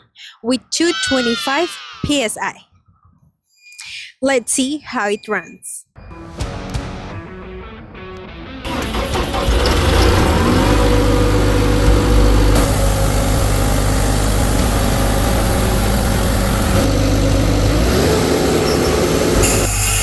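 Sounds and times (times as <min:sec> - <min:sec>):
diesel air compressor idling: 0:08.7 - 0:20.0.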